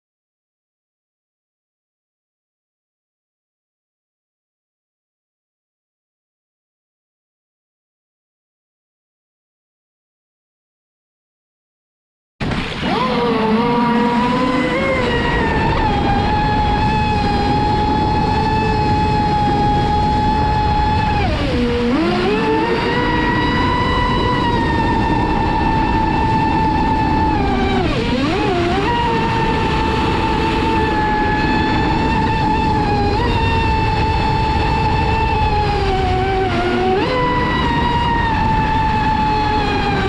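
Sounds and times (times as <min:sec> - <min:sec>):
rushing water: 0:12.4 - 0:40.0
electric motor whining: 0:12.6 - 0:40.0.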